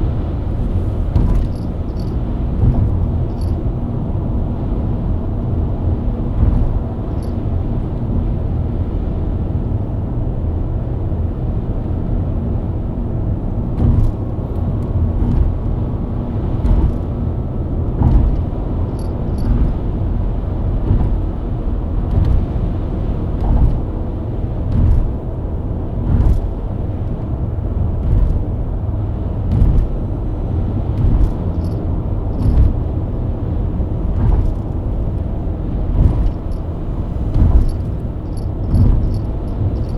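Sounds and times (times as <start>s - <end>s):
car engine and tyres cruising: 0.0s - 39.9s
short thumps: 0.4s - 3.6s, 6.3s - 7.4s, 13.8s - 14.3s, 16.6s - 17.2s, 18.0s - 19.9s, 20.8s - 22.6s, 24.7s - 25.2s, 29.4s - 30.0s, 30.8s - 33.0s, 34.1s - 35.1s, 35.8s - 39.9s.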